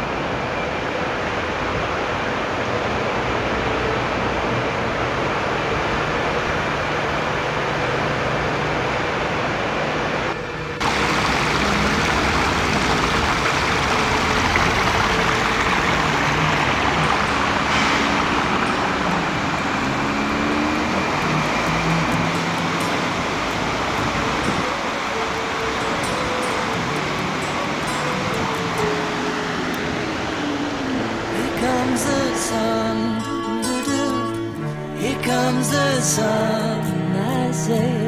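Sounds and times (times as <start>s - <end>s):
floodwater rushing: 0.0s - 36.3s.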